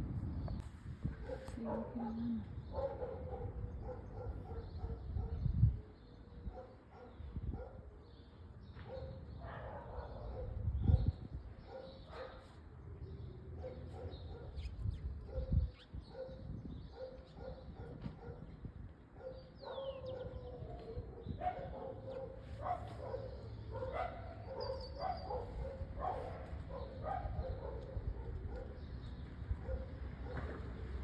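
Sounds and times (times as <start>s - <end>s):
small dogs barking: 1.2s - 5.5s, 6.4s - 7.9s, 8.8s - 12.6s, 13.6s - 14.7s, 15.3s - 18.6s, 19.2s - 28.9s, 29.5s - 30.6s.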